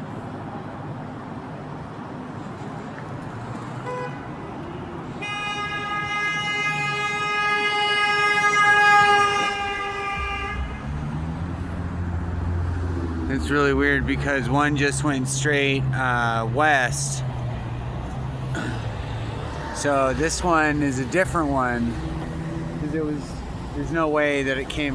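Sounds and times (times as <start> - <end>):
city traffic noise: 0.0 - 24.9
vehicle horn long blast: 3.8 - 4.3, 5.2 - 11.0
heavy vehicle engine rumbling: 5.9 - 24.9.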